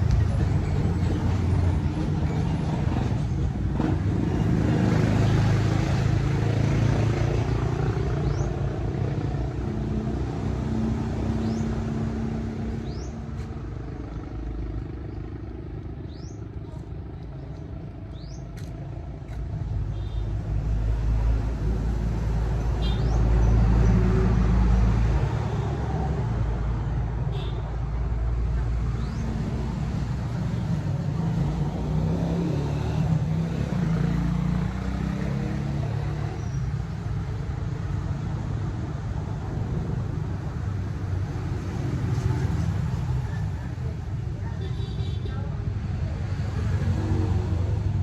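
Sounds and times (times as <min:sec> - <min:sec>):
road noise: 0:00.0 - 0:48.0
vehicle engine rumble: 0:00.0 - 0:48.0.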